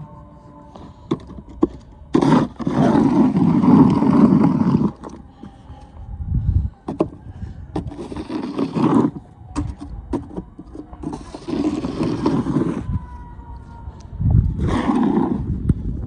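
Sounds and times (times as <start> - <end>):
snow shovel scraping snow: 2.1 - 5.1, 7.8 - 9.2, 11.0 - 12.8, 14.6 - 15.4.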